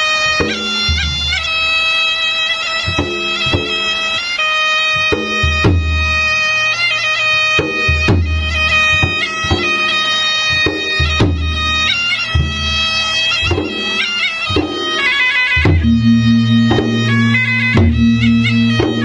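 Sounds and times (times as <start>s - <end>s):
shrill reed pipe melody: 0.0s - 19.0s
deep drum strokes: 15.6s - 19.0s
low sustained note: 15.8s - 19.0s.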